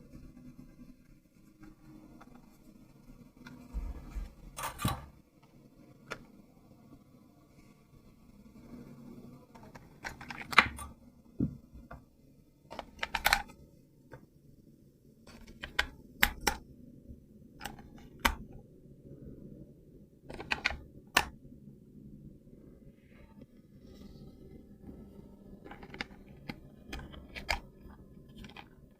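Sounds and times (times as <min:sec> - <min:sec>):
plastic toy clicks: 0:09.8 - 0:10.9, 0:12.8 - 0:13.5, 0:15.3 - 0:16.6, 0:17.6 - 0:18.4, 0:20.3 - 0:21.3, 0:25.7 - 0:27.7, 0:28.3 - 0:28.8.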